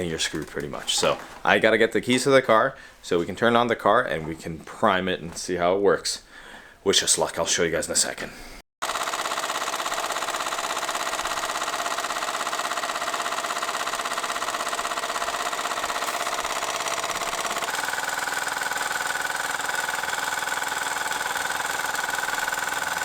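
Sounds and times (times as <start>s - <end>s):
air compressor chattering: 8.8s - 23.0s.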